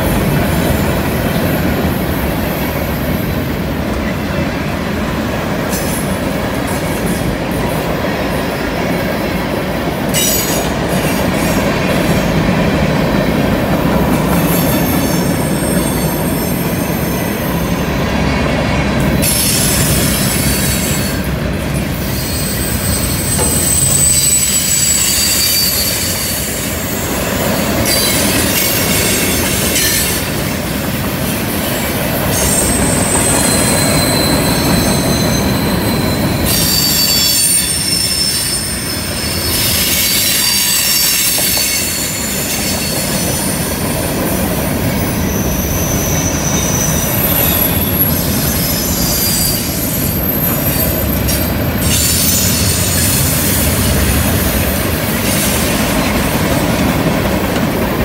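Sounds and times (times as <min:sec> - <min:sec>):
steel wheels rumbling on rail: 0:00.0 - 0:58.0
high-pitched wheel squeals: 0:14.3 - 0:18.0, 0:19.2 - 0:30.3, 0:31.8 - 0:56.1.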